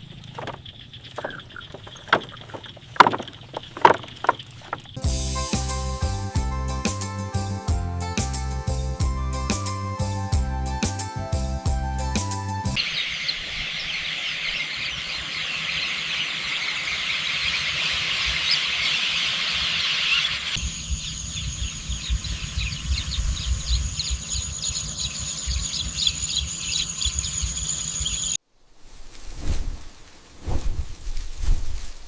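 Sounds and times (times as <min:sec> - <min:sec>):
birds and insects calling: 0:00.0 - 0:05.8, 0:12.7 - 0:28.4.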